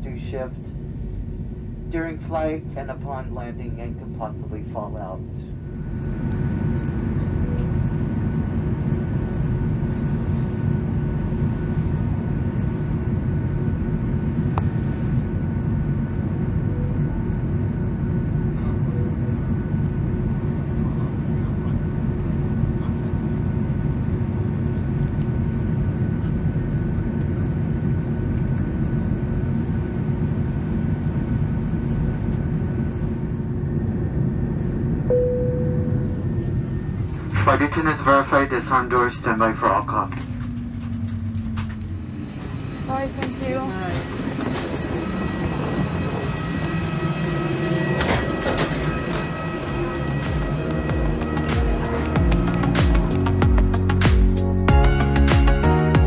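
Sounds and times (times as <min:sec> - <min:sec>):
airplane cabin engine noise: 0:00.0 - 0:54.2
faint steady tones: 0:35.1 - 0:37.2.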